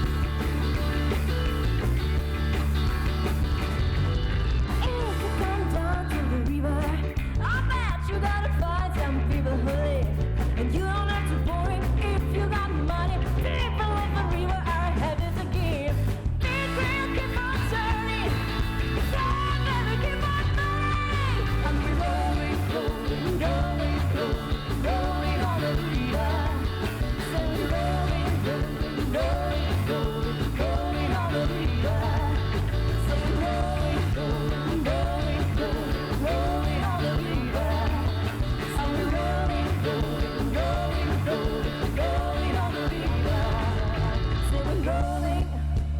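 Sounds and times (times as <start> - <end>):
live rock band playing: 0.0 - 45.6.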